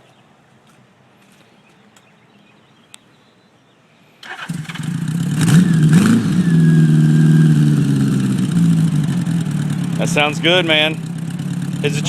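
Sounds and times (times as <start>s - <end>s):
motorcycle engine starting and idling: 4.2s - 12.0s.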